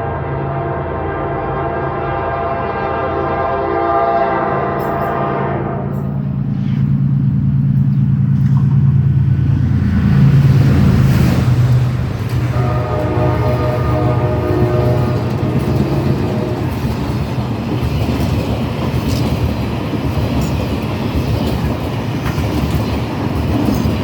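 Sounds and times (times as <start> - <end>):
train horn blast: 0.0 - 7.1, 11.6 - 17.5
locomotive engine rumble: 3.9 - 24.0
train wheels rolling: 4.5 - 24.0.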